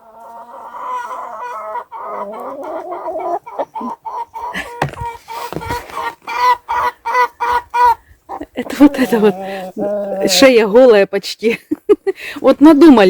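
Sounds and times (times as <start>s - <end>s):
chicken drawn-out call: 0.0s - 10.3s
chicken clucking: 0.0s - 10.4s.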